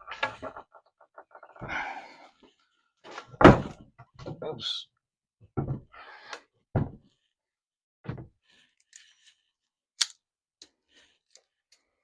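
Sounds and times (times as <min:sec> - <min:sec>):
dull thuds and knocks: 0:03.3 - 0:04.4, 0:05.5 - 0:06.0, 0:06.7 - 0:07.1, 0:08.0 - 0:08.4.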